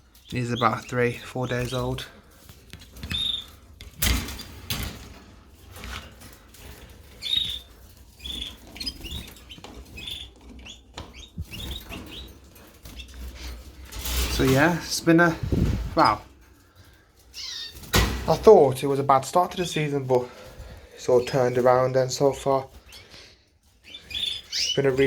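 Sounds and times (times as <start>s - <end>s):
canaries chirping: 0.0s - 25.0s.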